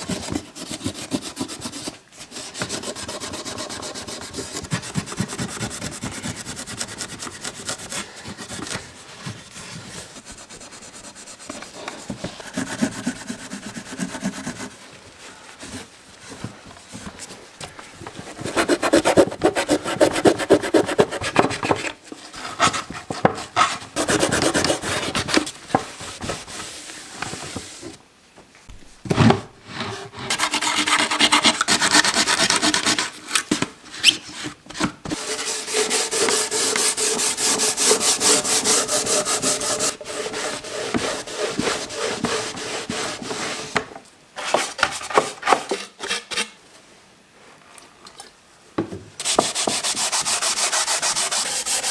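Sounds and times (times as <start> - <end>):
hand rubbing on wood: 49.3 - 51.9.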